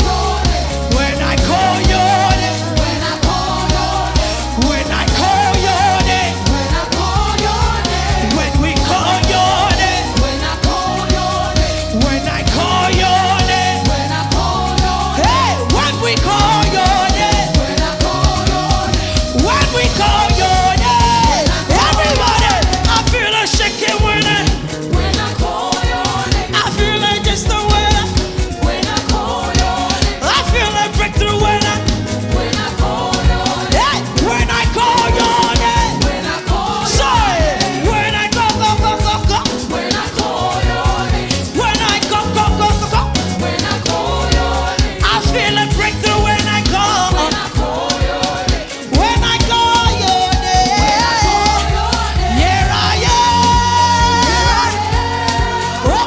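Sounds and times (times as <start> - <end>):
drums steady beat: 0.0 - 56.0
upbeat gospel music: 0.0 - 56.0.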